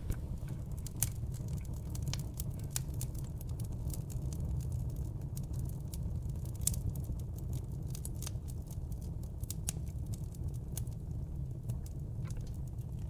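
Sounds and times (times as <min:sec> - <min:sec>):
low rumble of flames: 0:00.0 - 0:13.0
wood fire crackling: 0:00.0 - 0:13.0.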